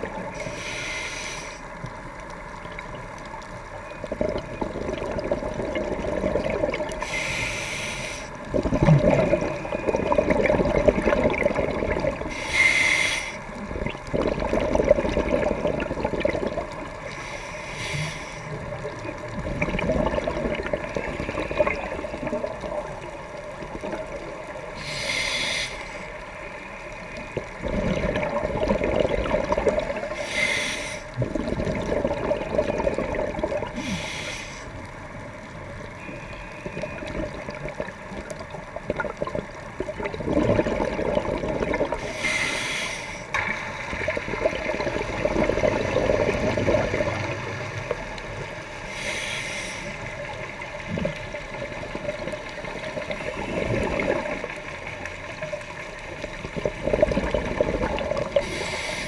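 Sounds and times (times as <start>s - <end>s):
gurgling exhaled bubbles: 0.0s - 0.6s, 3.9s - 7.3s, 8.3s - 17.2s, 18.5s - 25.2s, 27.4s - 30.5s, 31.1s - 34.0s, 36.0s - 49.1s, 49.9s - 59.0s
regulator inhalation hiss: 0.4s - 1.7s, 7.0s - 8.4s, 12.3s - 13.5s, 17.1s - 18.6s, 24.8s - 26.2s, 30.1s - 31.2s, 33.8s - 34.8s, 42.0s - 43.3s, 48.8s - 50.1s, 58.4s - 59.0s.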